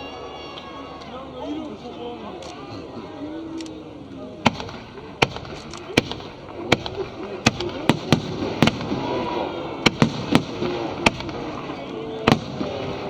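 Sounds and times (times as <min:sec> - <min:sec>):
murmur of crowd voices: 0:00.0 - 0:13.0
fireworks bursting: 0:04.4 - 0:13.0.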